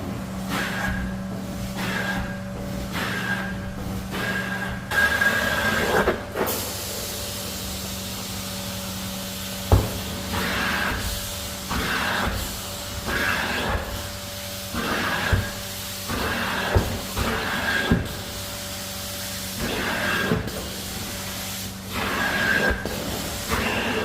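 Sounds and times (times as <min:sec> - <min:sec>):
carpet cleaner motor hum: 0:00.0 - 0:24.0
hissing spray and suction: 0:10.3 - 0:14.1, 0:14.7 - 0:18.7, 0:19.6 - 0:24.0.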